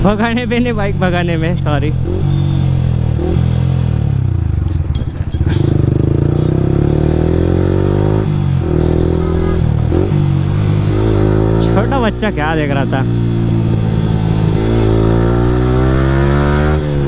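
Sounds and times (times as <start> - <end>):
motorcycle engine revving: 1.9 - 12.4, 13.0 - 17.0
short clicks: 4.8 - 5.8.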